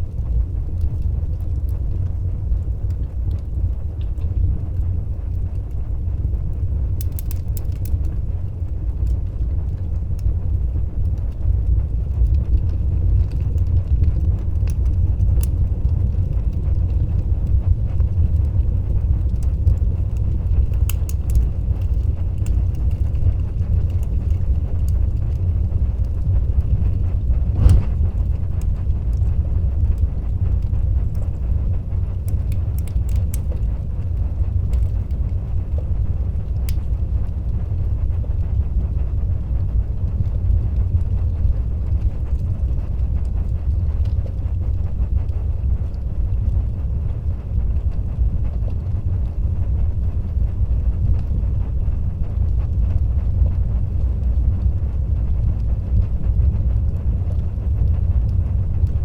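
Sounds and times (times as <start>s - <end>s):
fire crackles: 0.0s - 59.0s
fire flames rumbling: 0.0s - 59.0s
loud fire pop: 27.4s - 28.6s.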